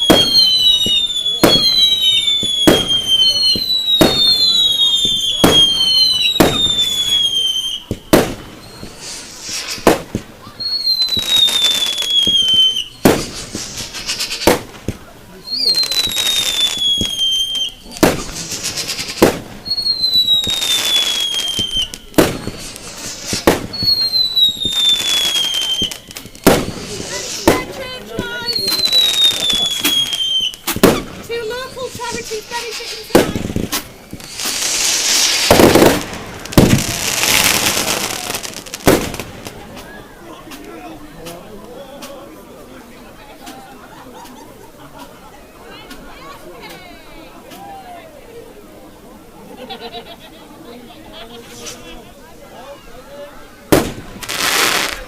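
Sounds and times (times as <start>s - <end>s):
firework whistle sliding down: 0.0s - 7.9s, 10.5s - 14.5s, 15.4s - 27.6s, 28.2s - 30.6s
firework bangs: 0.0s - 42.3s, 53.6s - 55.0s
firework crackling: 0.0s - 55.0s.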